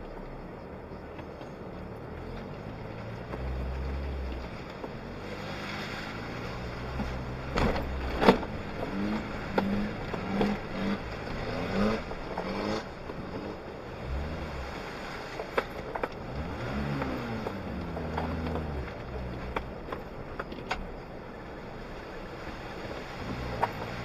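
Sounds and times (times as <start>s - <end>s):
car engine revving: 1.8s - 24.0s.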